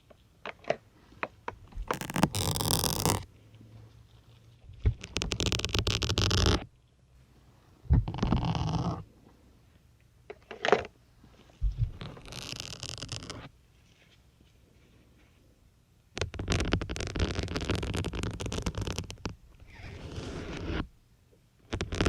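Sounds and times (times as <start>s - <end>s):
syringes crunching into sponge: 1.9s - 3.2s.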